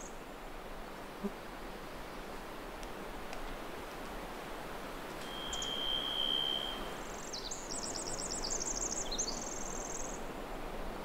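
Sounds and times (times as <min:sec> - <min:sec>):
background hiss: 0:00.0 - 0:11.0
songbirds singing: 0:05.3 - 0:10.2.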